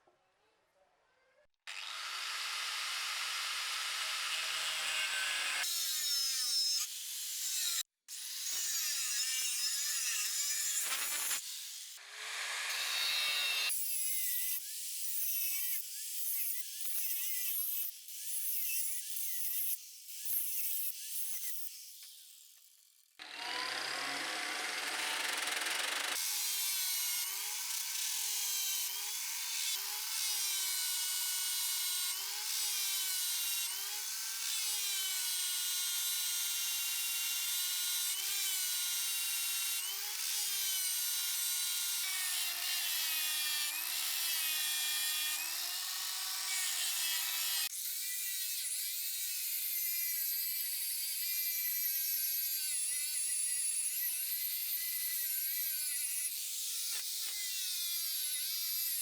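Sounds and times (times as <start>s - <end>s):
power tool motor: 1.7s - 8.9s, 10.2s - 48.1s.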